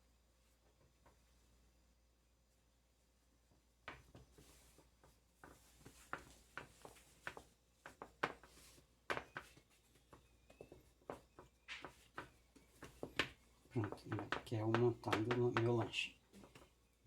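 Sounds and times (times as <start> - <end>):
hands tapping dough on a surface: 3.8 - 16.8.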